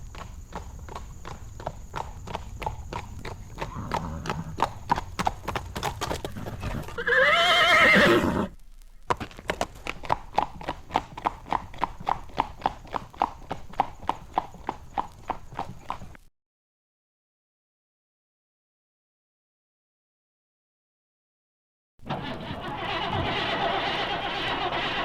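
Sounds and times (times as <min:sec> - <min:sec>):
horse hoofbeats: 0:00.0 - 0:16.3, 0:22.0 - 0:25.0
horse whinnying: 0:03.6 - 0:04.7, 0:06.2 - 0:08.6, 0:22.0 - 0:25.0.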